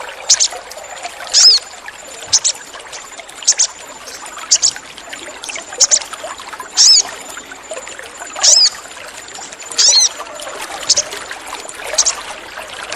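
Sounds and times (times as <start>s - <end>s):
trickle of running water: 0.0s - 12.9s
birds chirping: 0.1s - 6.1s, 6.7s - 7.5s, 8.2s - 8.8s, 9.4s - 10.2s, 10.8s - 11.2s, 11.9s - 12.3s
downward-sweeping bird calls: 0.3s - 0.6s, 1.3s - 4.8s, 6.8s - 7.1s, 8.4s - 8.8s, 9.8s - 10.2s.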